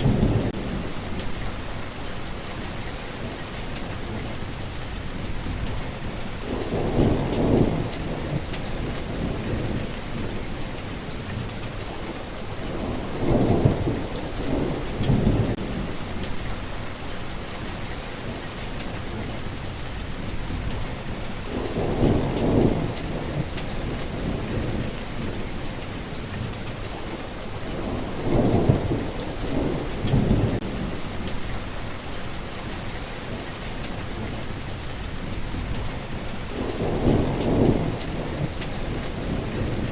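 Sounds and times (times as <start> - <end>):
rolling thunder: 0.0 - 1.8, 5.2 - 11.8, 12.4 - 16.8, 20.2 - 31.8, 33.6 - 39.9
steady rain falling: 0.0 - 39.9.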